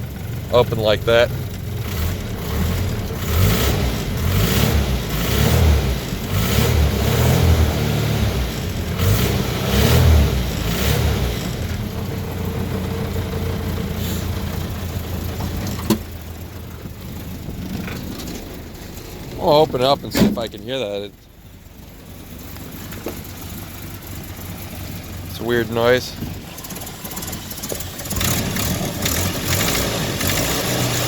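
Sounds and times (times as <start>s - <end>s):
car engine revving and idling: 0.0s - 31.0s.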